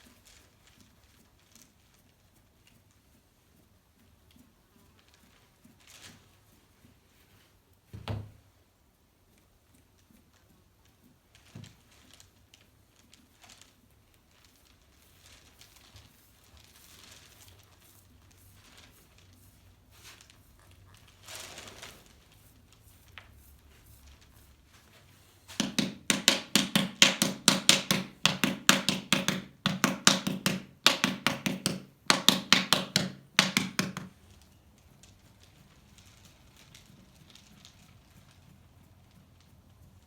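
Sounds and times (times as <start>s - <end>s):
paddle slapping clay: 25.2s - 34.2s.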